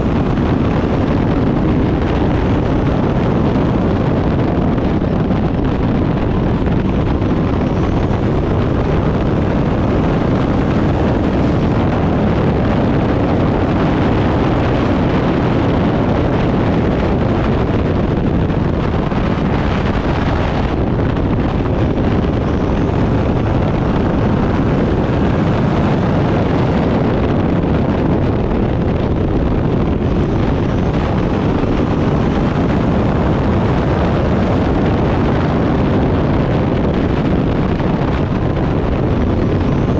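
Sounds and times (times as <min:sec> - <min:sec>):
race car engine running hard: 0:00.0 - 0:39.9
wind noise on microphone: 0:00.0 - 0:39.9.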